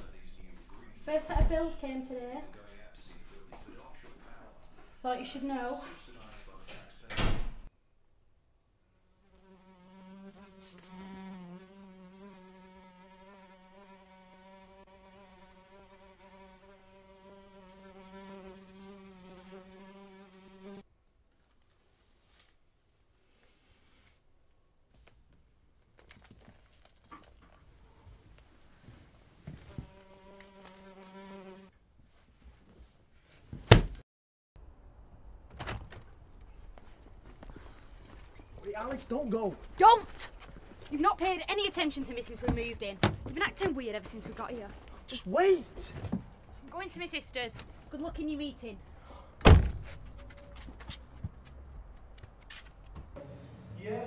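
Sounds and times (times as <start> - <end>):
fly buzzing in flight: 9.1 - 20.8, 29.6 - 31.7
loud thump: 49.4 - 50.1.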